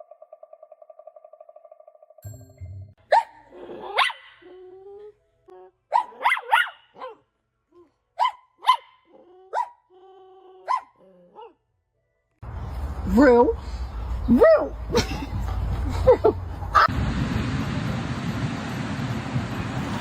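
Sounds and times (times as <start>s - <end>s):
dog barking: 3.1s - 4.5s, 5.9s - 7.2s, 8.2s - 9.8s, 10.6s - 11.6s.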